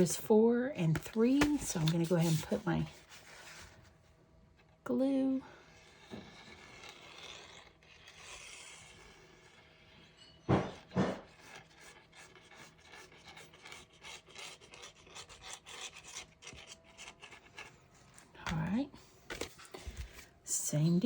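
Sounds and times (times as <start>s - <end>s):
hands rubbing over paper: 0.9s - 3.8s.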